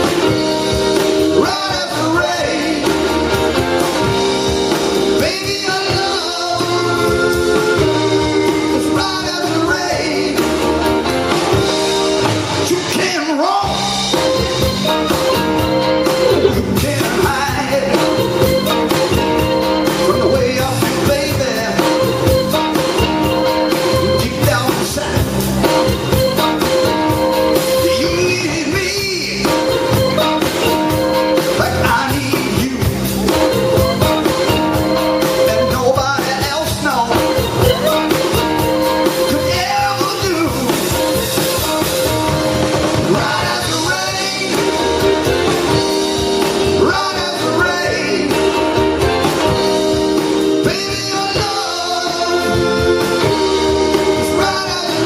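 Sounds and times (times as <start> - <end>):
person singing: 0.0 - 3.6, 5.1 - 11.6, 12.7 - 42.0, 43.0 - 49.6, 50.5 - 55.0
live blues band playing: 0.0 - 55.0.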